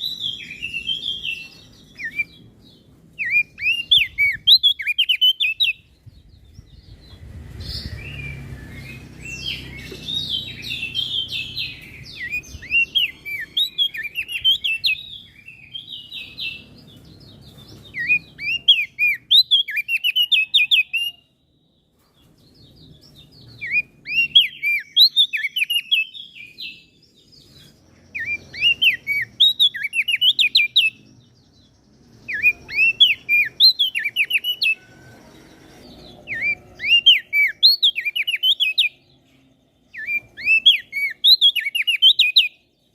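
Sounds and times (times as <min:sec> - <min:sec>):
songbird chirping: 0:00.0 - 0:42.9
low rumble: 0:06.0 - 0:09.6.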